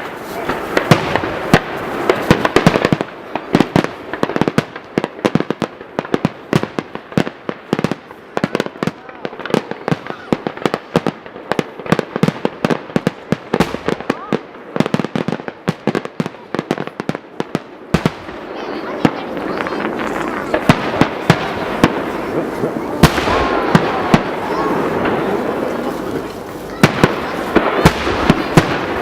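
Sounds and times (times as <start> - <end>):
fireworks bangs and cracks: 0.0 - 29.0.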